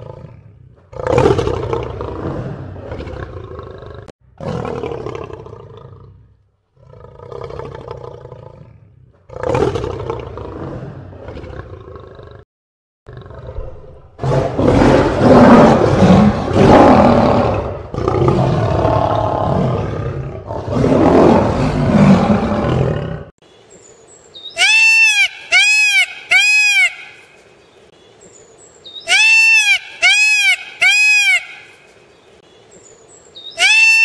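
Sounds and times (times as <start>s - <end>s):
animal roaring and growling: 0.0s - 12.4s, 13.1s - 23.4s
high calls rising and falling: 29.0s - 31.8s.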